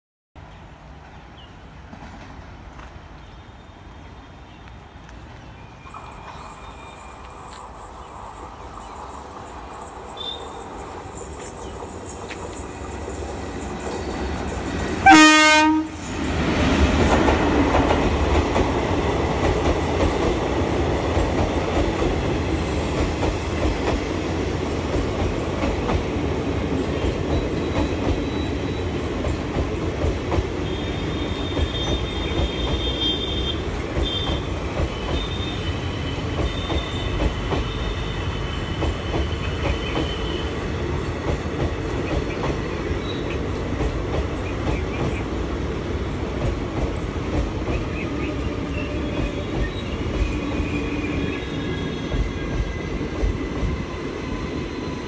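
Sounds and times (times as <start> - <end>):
train wheels rumbling on track: 0.8 - 55.0
train horn blast: 15.0 - 16.1.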